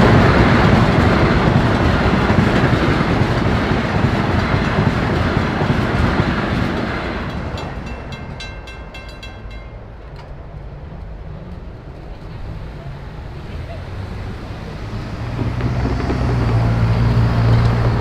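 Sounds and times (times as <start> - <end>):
train rumble and wheel clatter: 0.0 - 18.0
crossing warning bell dinging: 7.1 - 10.7.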